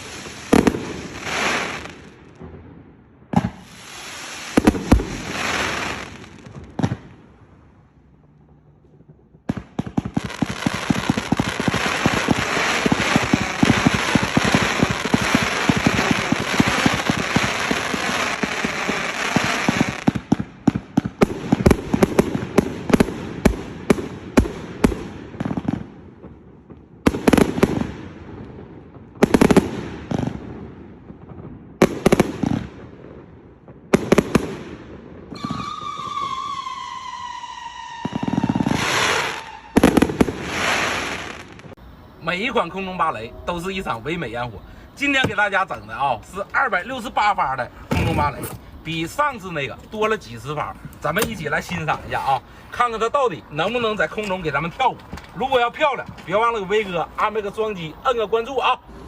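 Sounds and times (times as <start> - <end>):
fireworks loud bangs: 0.0 - 7.8, 8.4 - 58.0
fireworks crackling shots: 0.0 - 59.0
falling whistle tone: 35.4 - 38.5.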